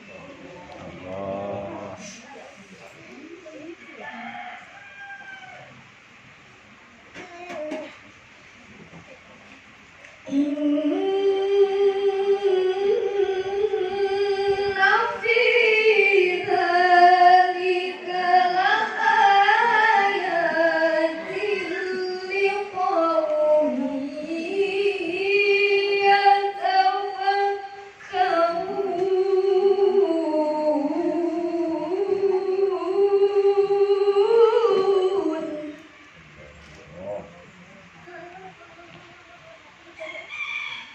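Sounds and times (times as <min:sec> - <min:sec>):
child chanting melodic recitation: 0:10.3 - 0:36.1.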